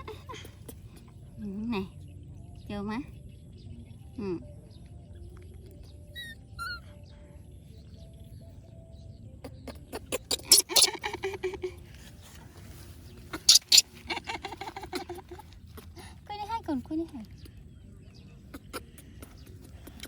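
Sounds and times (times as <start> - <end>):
monkey squeaking: 6.1 - 6.9, 9.9 - 11.6, 13.3 - 15.0
sharp clicking and smacking: 9.4 - 11.0.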